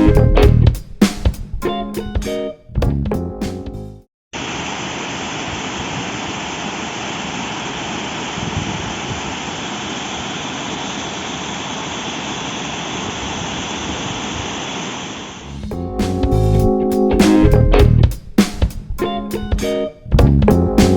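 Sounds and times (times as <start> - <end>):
guitar music: 0.0 - 0.8, 1.6 - 3.8, 15.6 - 18.2, 18.9 - 20.9
waterfall rushing: 4.4 - 15.5.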